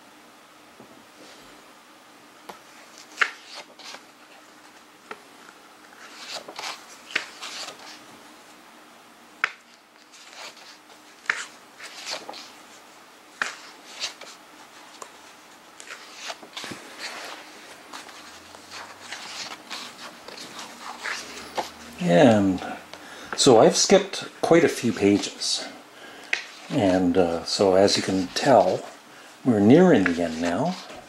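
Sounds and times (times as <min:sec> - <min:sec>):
book pages turning: 0:02.8 - 0:05.2, 0:05.8 - 0:08.0, 0:09.4 - 0:12.6, 0:13.3 - 0:22.1, 0:26.2 - 0:29.0, 0:29.6 - 0:31.0.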